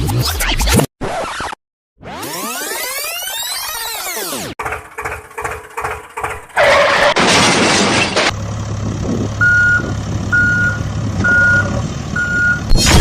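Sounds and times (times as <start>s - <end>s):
heavy truck engine running low: 4.6s - 7.1s, 8.3s - 12.7s
reversing alarm beeping: 9.4s - 12.7s
loud crashing burst: 12.7s - 13.0s.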